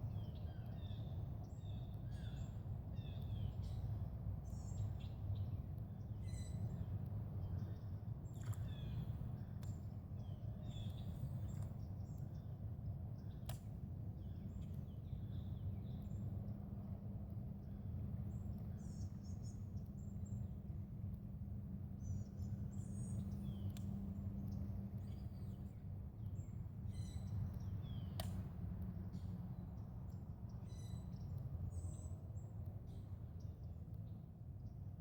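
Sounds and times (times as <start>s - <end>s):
sharp clicks: 28.1s - 28.4s.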